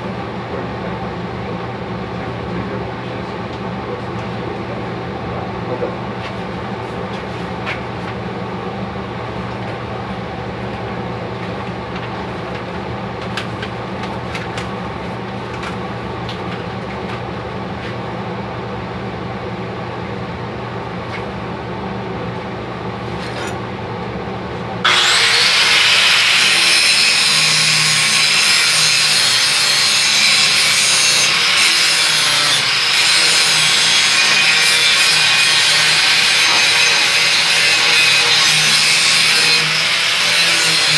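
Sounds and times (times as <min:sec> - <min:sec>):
angle grinder grinding steel: 0:24.9 - 0:40.9.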